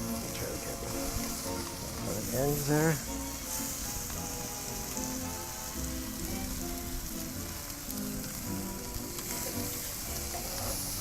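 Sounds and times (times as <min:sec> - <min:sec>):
meat sizzling on a grill: 0:00.0 - 0:11.0
music of held notes: 0:00.0 - 0:11.0.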